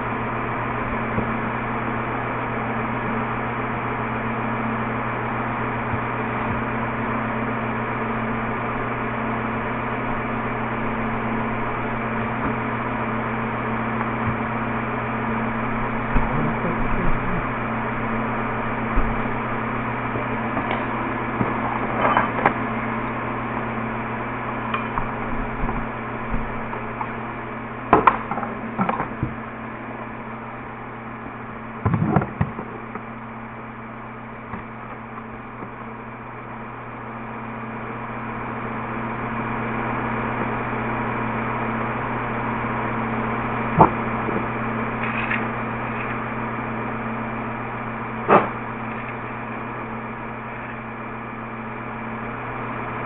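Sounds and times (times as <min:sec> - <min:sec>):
electrical hum: 0:00.0 - 0:53.0.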